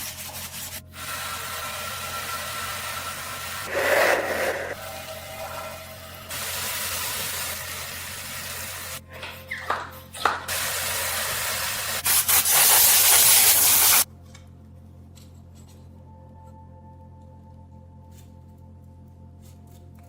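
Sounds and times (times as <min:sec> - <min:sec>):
spray paint hissing on metal: 0:00.0 - 0:09.0, 0:10.5 - 0:14.1.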